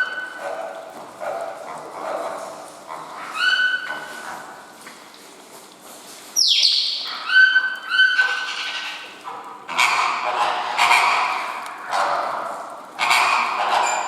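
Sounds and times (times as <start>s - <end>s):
water bird falling cry: 3.2s - 4.7s, 6.4s - 9.2s
short pitched bird calls: 6.4s - 7.5s
harsh bird calls: 6.4s - 9.0s.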